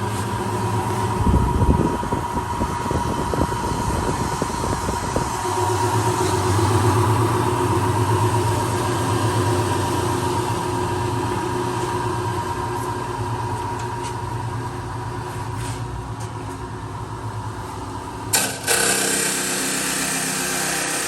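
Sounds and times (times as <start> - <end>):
chop saw motor hum: 2.8 - 11.6, 18.3 - 21.0.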